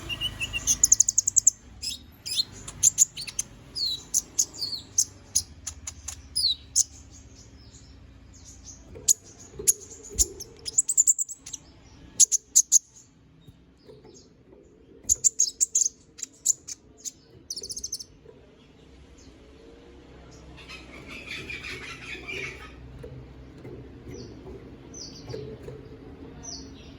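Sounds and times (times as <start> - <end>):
bird trill: 0.0 - 13.1, 15.1 - 18.1, 20.6 - 22.8
songbird chirping: 0.0 - 26.9.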